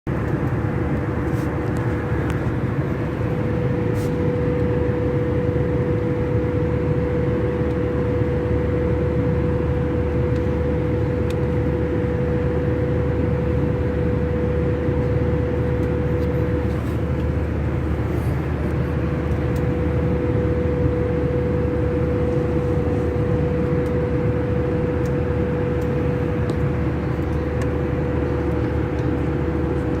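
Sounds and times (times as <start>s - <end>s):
airliner cabin engine drone: 0.1s - 30.0s
constant hum: 0.1s - 30.0s.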